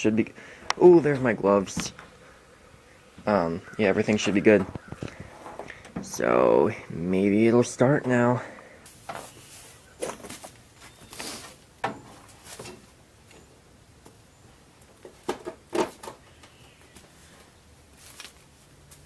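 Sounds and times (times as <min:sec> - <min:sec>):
objects knocking and clunking: 0:11.8 - 0:12.9, 0:14.9 - 0:16.2.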